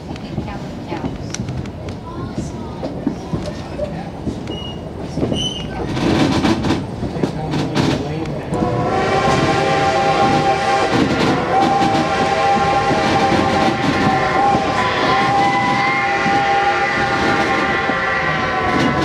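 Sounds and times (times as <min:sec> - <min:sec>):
train coaches rumbling on track: 0:00.0 - 0:19.0
shrill steady tone: 0:08.9 - 0:19.0.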